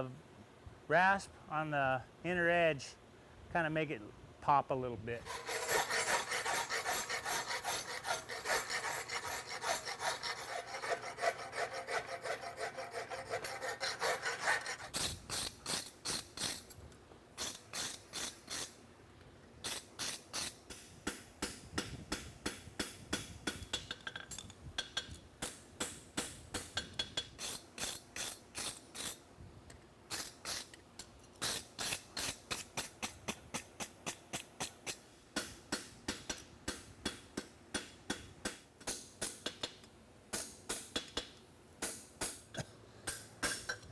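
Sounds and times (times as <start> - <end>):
rasp scraping steel horseshoe: 5.2 - 16.7, 26.6 - 29.2, 31.4 - 33.1.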